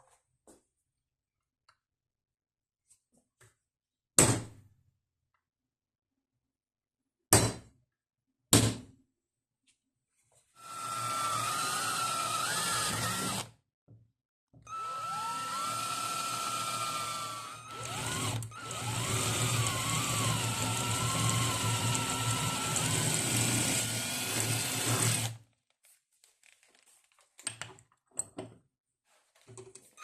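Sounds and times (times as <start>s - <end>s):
electric power tool motor whine: 10.6s - 13.5s, 14.7s - 25.3s.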